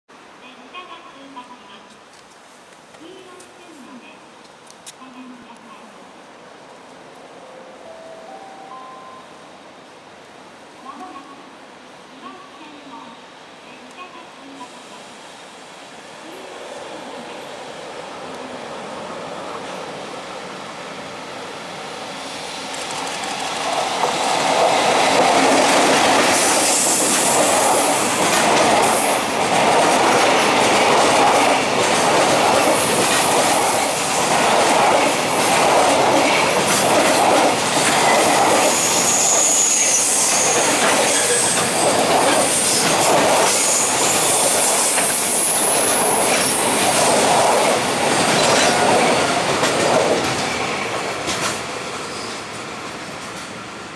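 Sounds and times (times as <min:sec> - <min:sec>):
high wheel squeals: 0:38.7 - 0:41.7.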